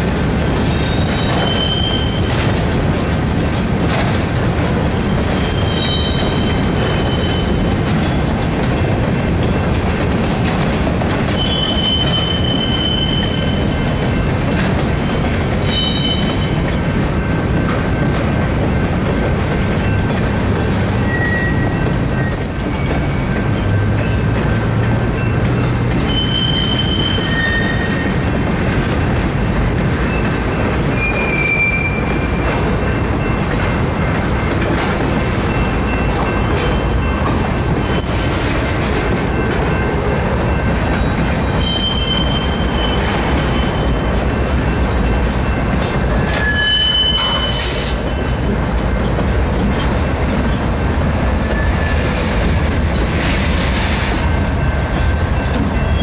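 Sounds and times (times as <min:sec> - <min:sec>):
train wheels rumbling on track: 0:00.0 - 0:56.0
high-pitched wheel squeals: 0:00.7 - 0:02.3, 0:05.4 - 0:07.6, 0:11.4 - 0:13.8, 0:20.4 - 0:24.3, 0:26.0 - 0:28.2, 0:30.9 - 0:32.4, 0:37.8 - 0:38.4, 0:41.5 - 0:44.0, 0:46.2 - 0:48.4.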